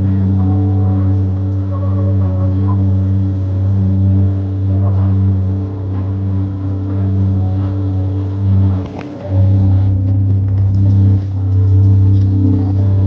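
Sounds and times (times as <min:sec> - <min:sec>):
jet ski engine running: 0:00.0 - 0:13.0.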